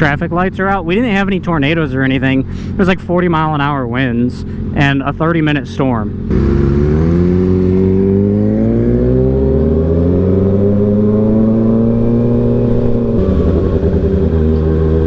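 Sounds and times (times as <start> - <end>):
motorcycle engine revving: 6.1 - 15.0.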